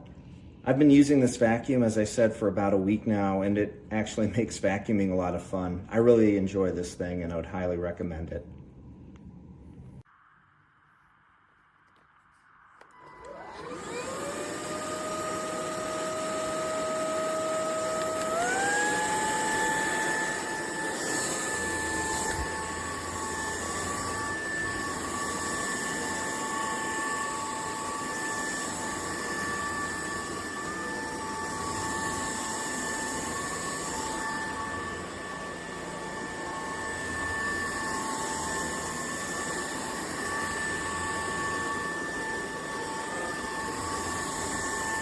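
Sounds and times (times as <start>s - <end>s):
stick vacuum running: 12.8s - 45.0s.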